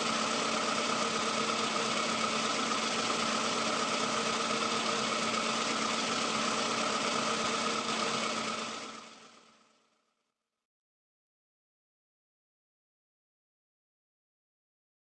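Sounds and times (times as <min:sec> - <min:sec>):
engine idling with hum: 0:00.0 - 0:10.2.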